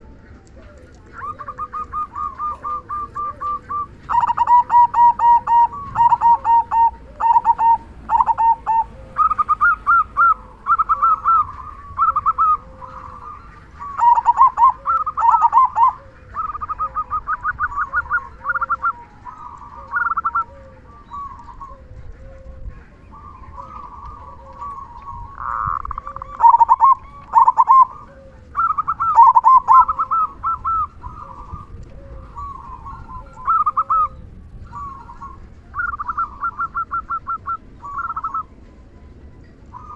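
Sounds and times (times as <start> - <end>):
doves cooing in rapid runs: 0.0 - 38.5
fainter low coo: 17.8 - 29.2.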